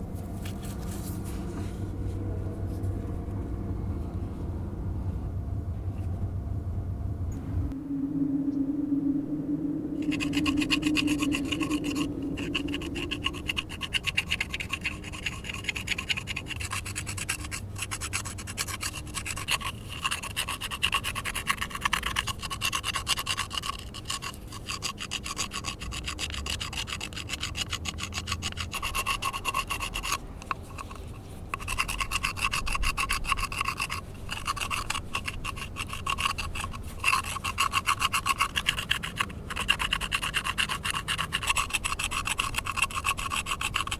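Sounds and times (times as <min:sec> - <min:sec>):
clay pot being sanded: 0:10.0 - 0:43.9.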